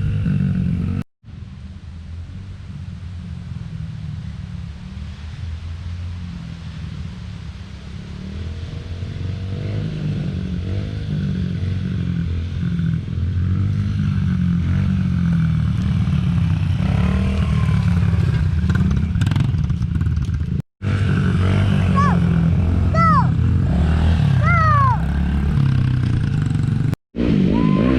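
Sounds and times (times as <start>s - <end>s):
dirt bike engine revving: 8.0s - 27.9s.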